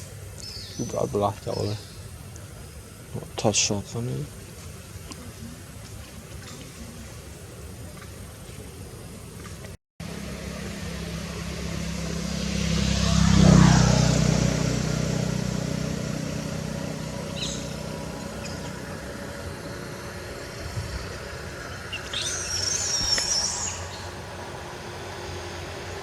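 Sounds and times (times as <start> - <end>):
vehicle engine driving past: 10.0 - 26.0.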